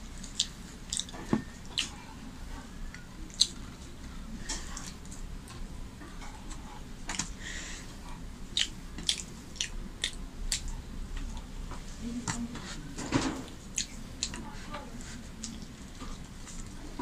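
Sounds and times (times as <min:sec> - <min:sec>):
wet chewing mouth clicks: 0:00.2 - 0:02.0, 0:08.5 - 0:11.5.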